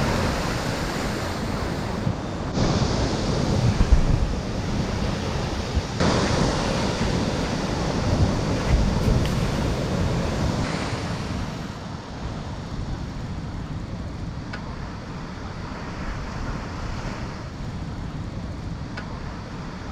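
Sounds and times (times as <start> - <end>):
sea waves breaking: 0.0 - 19.9
wind buffeting microphone: 0.0 - 19.9.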